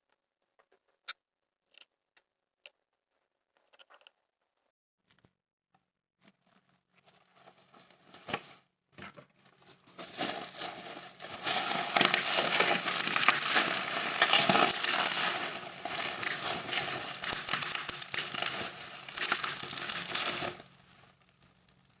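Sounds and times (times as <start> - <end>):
packaging crinkling: 7.0 - 21.9.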